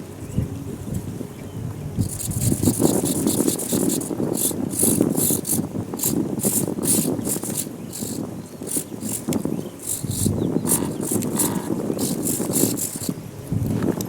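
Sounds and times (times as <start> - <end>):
wind buffeting microphone: 0.0 - 14.0
high-pitched servo buzzing: 2.0 - 13.2.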